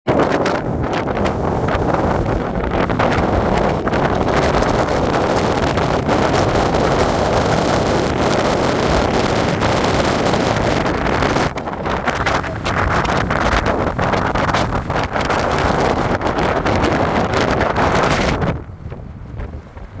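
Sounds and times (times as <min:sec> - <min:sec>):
wind buffeting microphone: 0:00.1 - 0:20.0.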